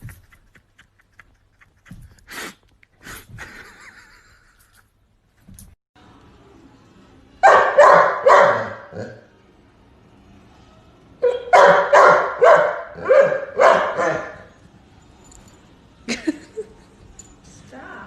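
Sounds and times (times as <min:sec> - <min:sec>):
dog barking: 0:07.4 - 0:09.2, 0:11.2 - 0:14.6.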